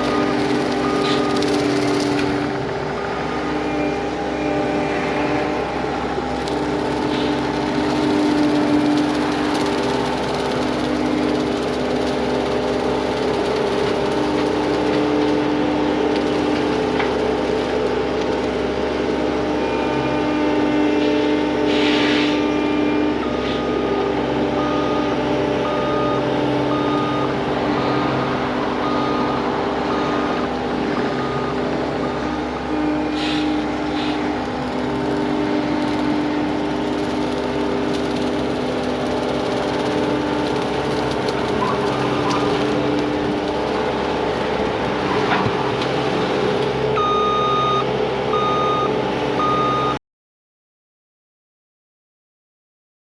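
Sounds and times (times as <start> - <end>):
track loader machine hum: 0.0 - 50.0
backup alarm beeping: 47.0 - 50.0.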